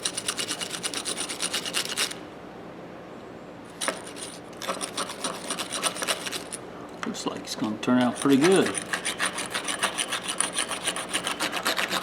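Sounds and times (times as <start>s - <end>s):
wire brush scrubbing metal: 3.8s - 6.5s, 8.0s - 12.0s.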